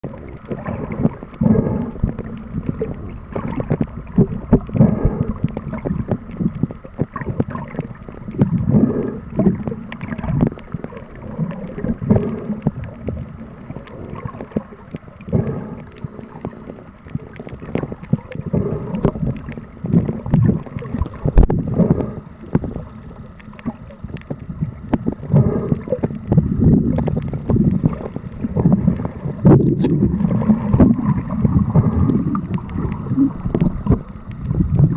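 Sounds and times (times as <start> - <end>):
underwater sloshing and gurgling: 0.0 - 34.9
underwater knocks: 23.6 - 34.9.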